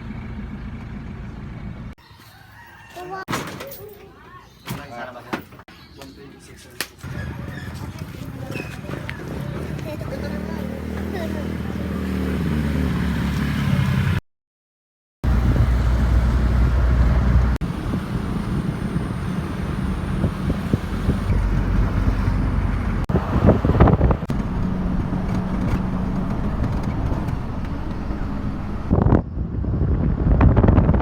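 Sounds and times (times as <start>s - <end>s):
vehicle engine hum: 0.0s - 2.0s, 7.0s - 14.2s, 15.2s - 31.0s
road noise: 0.0s - 14.2s, 15.2s - 31.0s.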